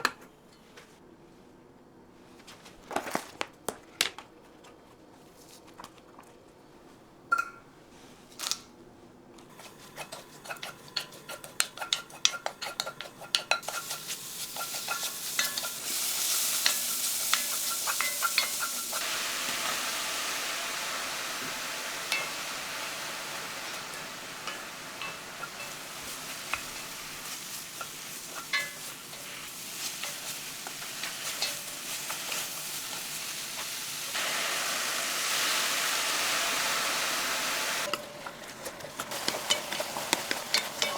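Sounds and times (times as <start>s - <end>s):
utensil scraping a pan: 9.5s - 19.0s, 22.0s - 34.2s, 37.8s - 40.9s
utensil tapping: 9.5s - 19.0s, 21.4s - 33.8s, 37.8s - 40.9s
food sizzling in a frying pan: 9.5s - 40.9s.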